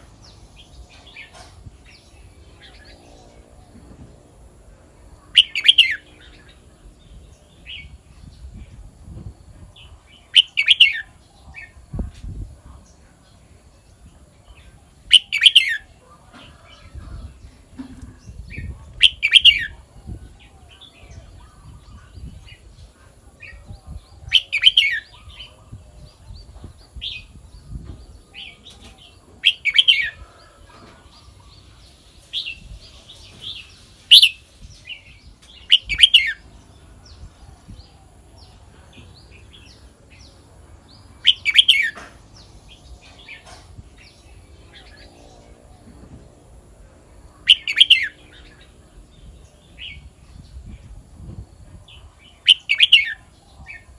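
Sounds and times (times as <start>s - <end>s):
bird singing warbled phrases: 5.2s - 8.6s, 9.8s - 16.0s, 17.1s - 22.7s, 23.4s - 30.3s, 31.2s - 45.7s, 47.2s - 50.9s, 51.8s - 53.9s.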